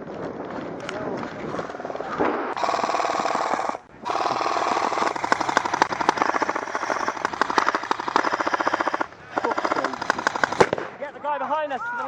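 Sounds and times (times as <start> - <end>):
airsoft guns firing full auto: 2.6 - 11.0.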